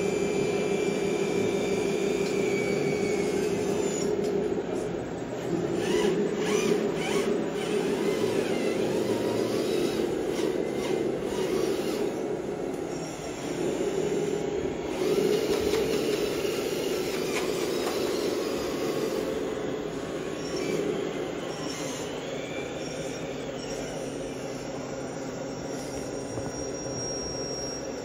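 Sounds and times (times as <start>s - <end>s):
model truck motors droning: 0.0s - 28.0s
thin high whine: 15.9s - 28.0s.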